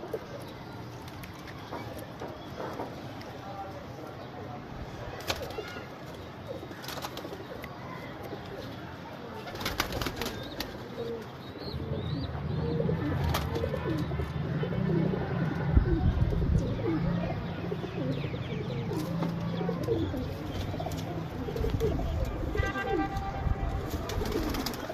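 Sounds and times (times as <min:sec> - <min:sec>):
pigeons cooing: 0:09.5 - 0:23.1, 0:24.0 - 0:24.9.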